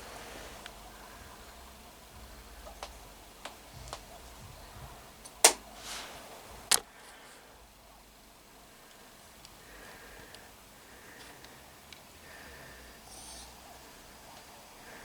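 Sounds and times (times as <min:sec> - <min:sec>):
sharp loud clicks: 0:05.3 - 0:05.7
short soft hiss: 0:05.4 - 0:06.4.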